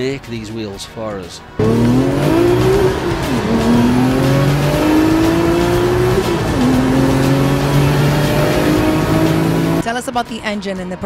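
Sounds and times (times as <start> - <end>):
car engine accelerating hard: 1.6 - 9.8.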